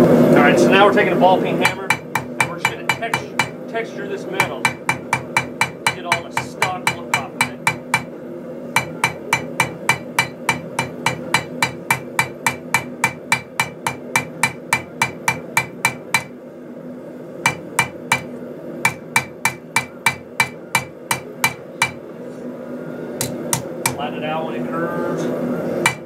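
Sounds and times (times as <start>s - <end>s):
hammer striking steel: 1.6s - 3.6s, 4.4s - 8.2s, 8.8s - 16.4s, 17.4s - 22.0s, 23.2s - 24.1s.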